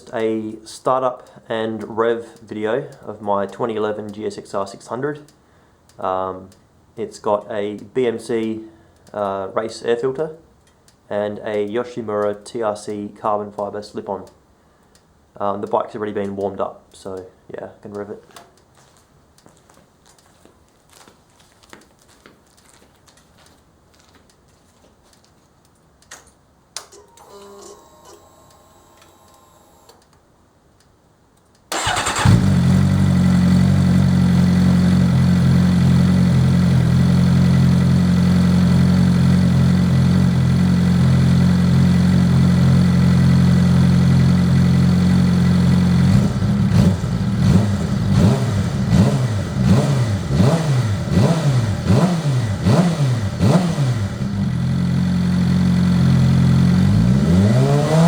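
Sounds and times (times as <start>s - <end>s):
motorcycle engine idling and revving: 31.8s - 58.0s.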